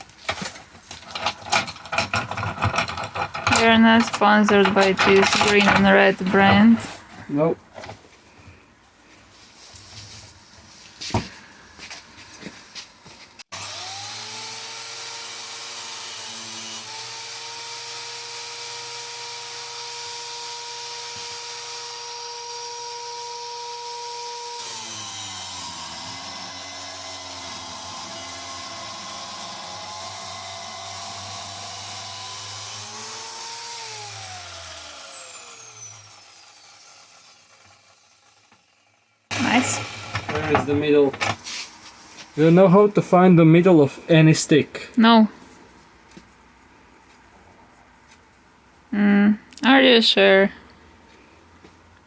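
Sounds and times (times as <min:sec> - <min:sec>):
power tool cutting metal: 0:01.1 - 0:06.6, 0:13.5 - 0:41.6.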